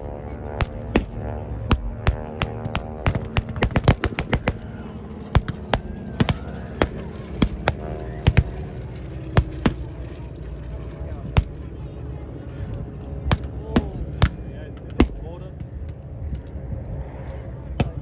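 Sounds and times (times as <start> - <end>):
blank gunfire: 0.6 - 4.6.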